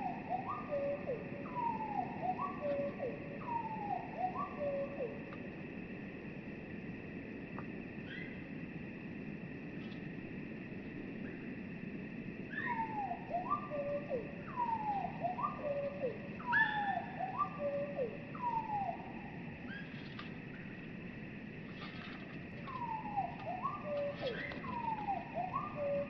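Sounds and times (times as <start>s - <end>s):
slowed bird song whistles: 0.0s - 5.2s, 8.0s - 8.4s, 12.5s - 20.6s, 22.6s - 26.0s.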